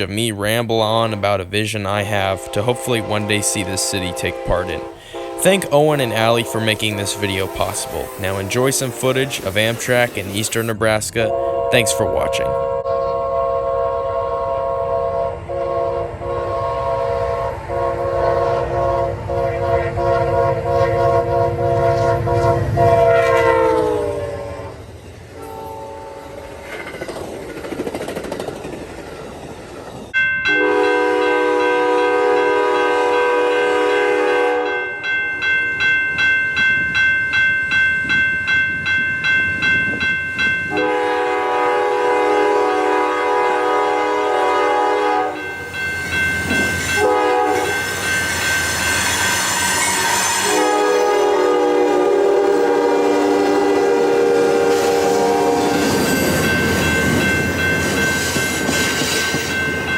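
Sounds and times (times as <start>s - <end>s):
locomotive horn blasts: 2.2s - 10.3s, 11.2s - 24.8s, 25.4s - 26.5s, 30.5s - 34.9s, 40.7s - 45.6s, 46.5s - 59.6s
bell ringing rapidly: 30.2s - 31.8s, 34.6s - 40.8s, 45.4s - 47.0s, 47.6s - 50.2s, 55.9s - 59.9s.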